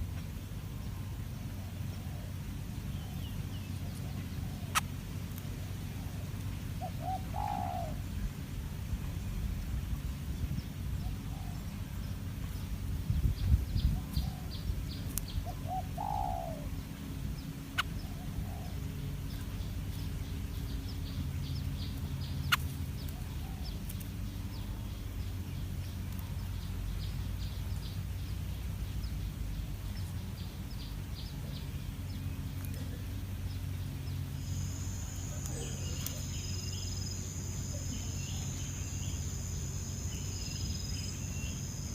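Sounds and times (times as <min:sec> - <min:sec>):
birds calling: 0:00.0 - 0:41.9
low steady hum: 0:00.0 - 0:41.9
insect trill: 0:34.3 - 0:41.9.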